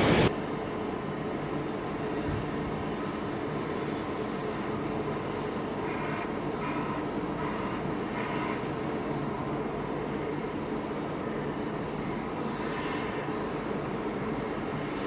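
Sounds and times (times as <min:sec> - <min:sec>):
train rumbling past: 0:00.0 - 0:00.3.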